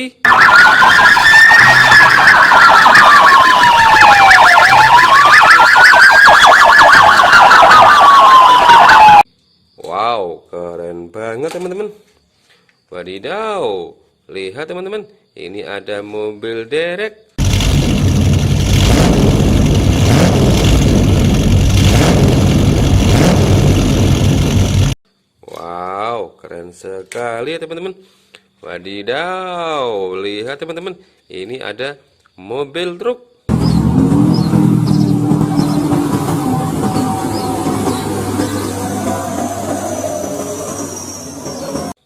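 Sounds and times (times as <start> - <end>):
police siren wailing and yelping: 0.2 - 9.3, 33.6 - 42.0
heavy vehicle engine rumbling: 17.4 - 25.0, 33.5 - 42.0.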